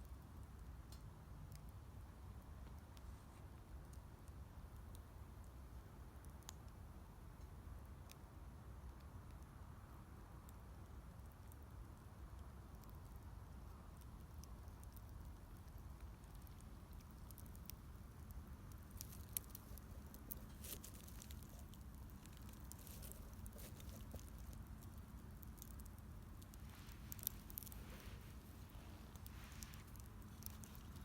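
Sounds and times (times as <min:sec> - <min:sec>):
wood fire crackling: 0:11.3 - 0:31.0.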